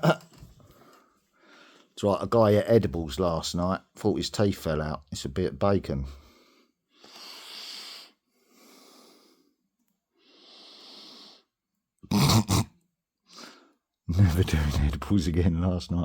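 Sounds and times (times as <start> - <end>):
man wheezing laughter: 0.0 - 0.4.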